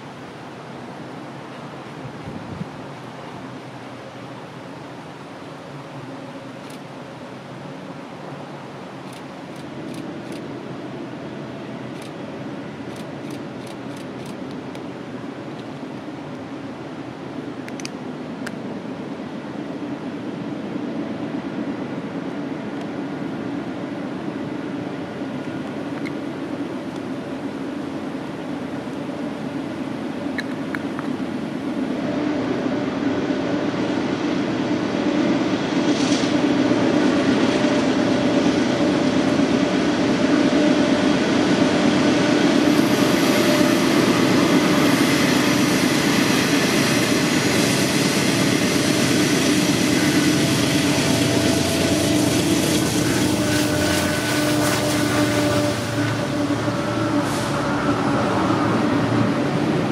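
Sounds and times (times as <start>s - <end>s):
diesel locomotive rumble: 0.0s - 59.9s
brief hiss: 57.2s - 57.8s.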